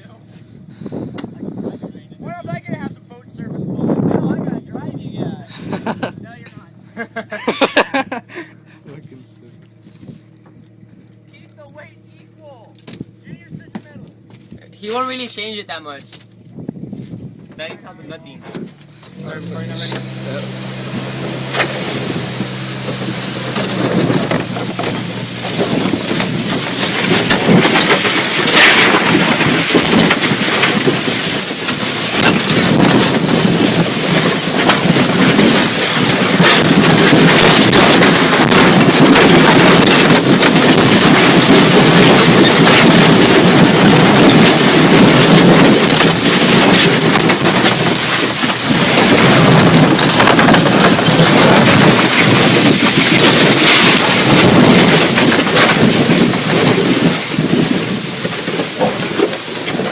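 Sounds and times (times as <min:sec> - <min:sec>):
tow vehicle running: 0:00.0 - 0:59.9
boat hull sliding over sand: 0:19.1 - 0:59.9.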